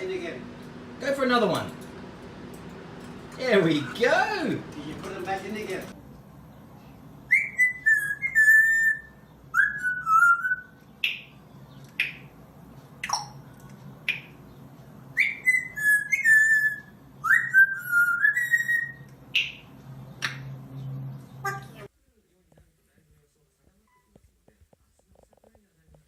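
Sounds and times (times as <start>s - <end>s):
parrot sharp chirps: 15.2s - 20.4s.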